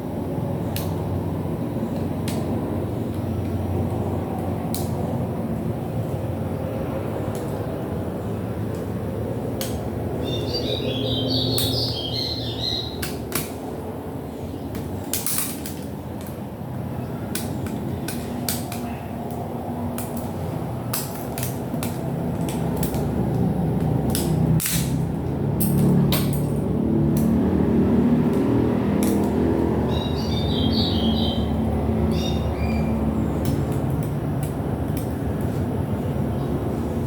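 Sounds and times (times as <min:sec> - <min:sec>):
clicks and knocks of parts handled: 0:14.7 - 0:16.4, 0:17.3 - 0:27.4, 0:28.2 - 0:29.4
steady low rumble: 0:15.9 - 0:37.0.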